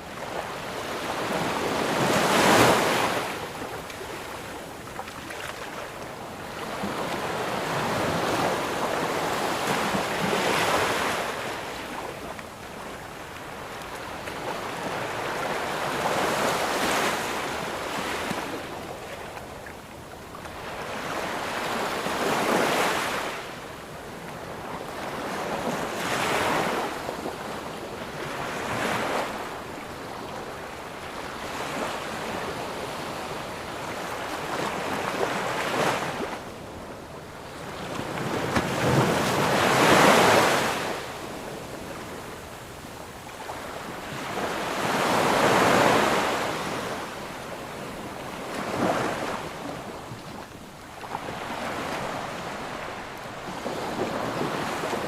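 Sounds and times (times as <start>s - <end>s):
sea waves breaking on beach: 0.3s - 12.1s, 37.6s - 55.0s.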